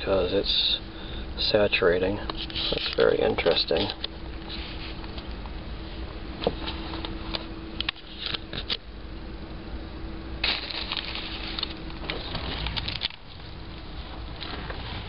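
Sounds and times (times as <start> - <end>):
steady low hum: 0.0 - 15.0
handling rustling and clicks: 10.4 - 13.2.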